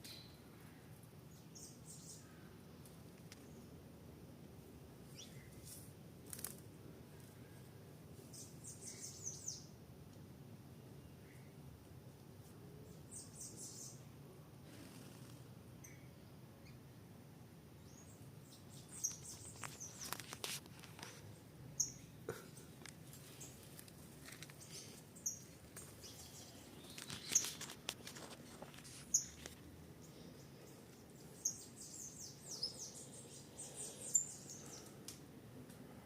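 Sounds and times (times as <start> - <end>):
birds chirping: 8.3 - 9.8, 17.8 - 20.3, 21.0 - 35.0.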